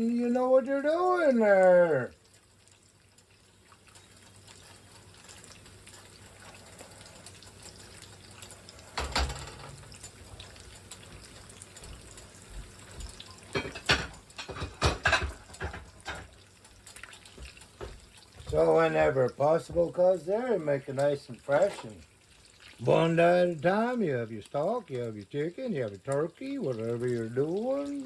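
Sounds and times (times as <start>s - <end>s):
liquid running and splashing: 0.0s - 28.0s
clattering knocks: 13.6s - 16.3s.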